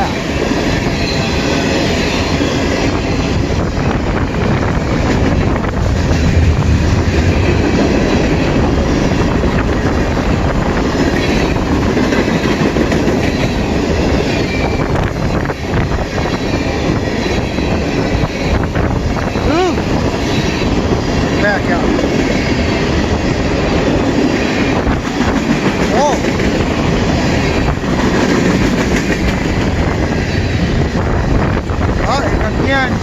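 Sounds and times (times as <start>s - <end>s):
freight train wheels rumbling: 0.0s - 33.0s.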